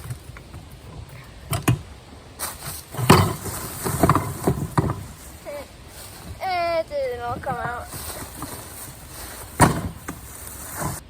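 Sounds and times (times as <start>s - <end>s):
sand pouring out: 0.0s - 11.0s
container thumps and knocks: 1.5s - 5.4s, 7.4s - 11.0s.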